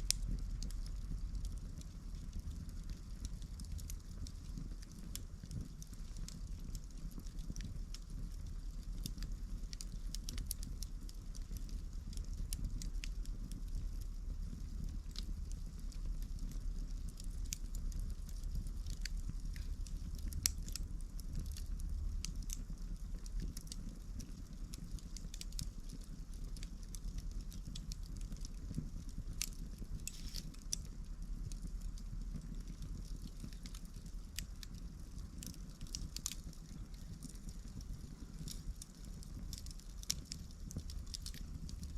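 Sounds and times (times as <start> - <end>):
campfire crackling and popping: 0.0 - 41.9
low steady rumble: 0.0 - 41.9.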